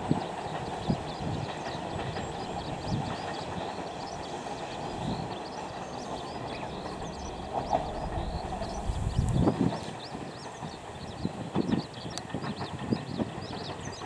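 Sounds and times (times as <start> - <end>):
electric train rumbling on track: 0.0 - 14.0
birds chirping: 2.4 - 9.6
wheels knocking: 4.8 - 9.5.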